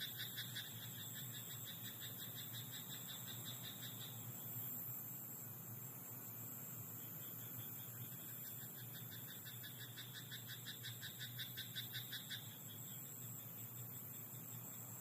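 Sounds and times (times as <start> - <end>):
frog croaking: 0.0 - 4.2, 8.3 - 12.8.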